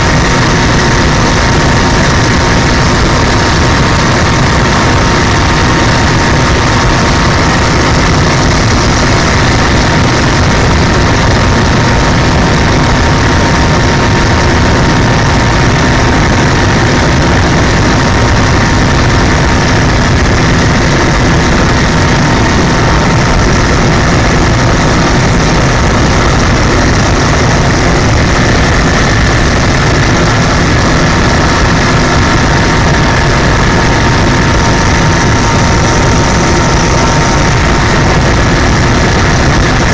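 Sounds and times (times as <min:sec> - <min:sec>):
constant whining tone: 0:00.0 - 0:39.9
helicopter engine and rotor drone: 0:00.0 - 0:39.9.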